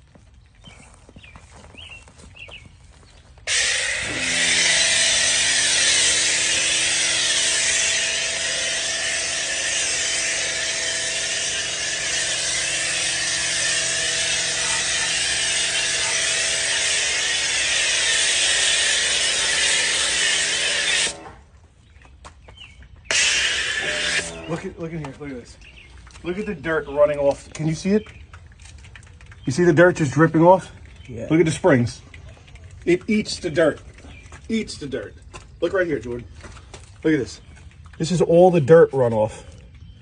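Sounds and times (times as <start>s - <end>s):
machine hum: 3.4s - 21.6s, 23.1s - 24.9s
pressure spray hissing: 3.5s - 21.2s, 23.1s - 24.6s.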